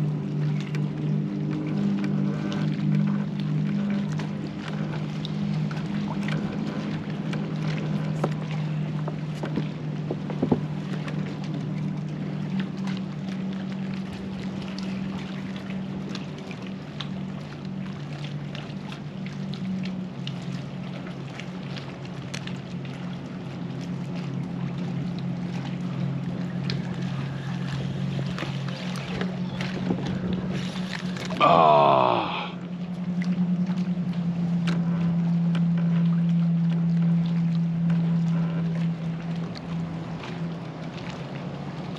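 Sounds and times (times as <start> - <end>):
electric trolling motor humming: 0.0 - 41.9
water ticking against hull: 0.0 - 41.9.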